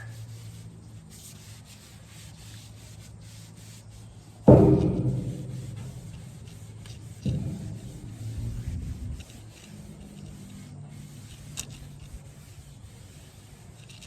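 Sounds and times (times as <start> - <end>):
rag rubbing wood: 0.0 - 14.0
small knock: 4.5 - 8.7
loud ringing thump: 4.5 - 9.2.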